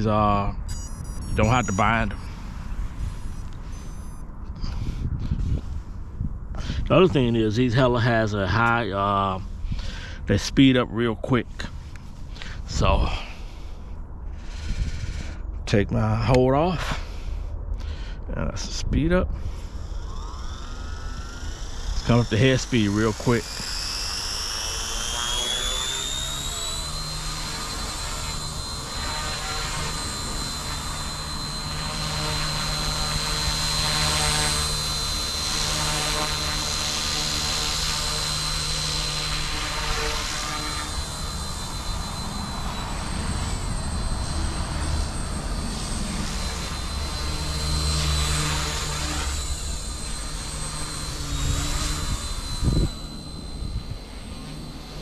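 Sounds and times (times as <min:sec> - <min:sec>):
toy helicopter rotor whine: 0:00.0 - 0:15.6, 0:16.2 - 0:55.0.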